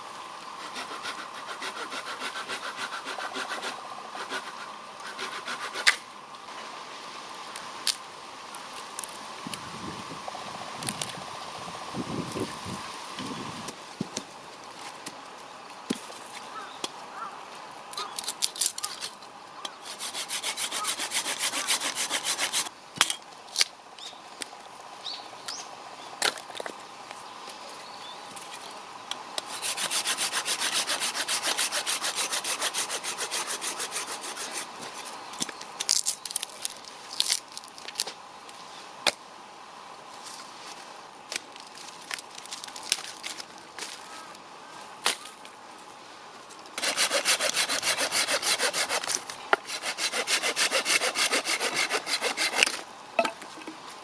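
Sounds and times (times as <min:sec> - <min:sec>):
hand saw cutting wood: 0:00.6 - 0:06.0, 0:19.8 - 0:22.7, 0:29.4 - 0:35.1, 0:46.8 - 0:52.8.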